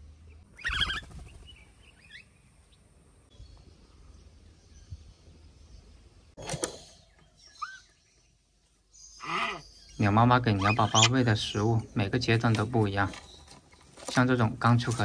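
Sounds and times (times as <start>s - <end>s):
loud harsh bird call: 9.2s - 11.7s.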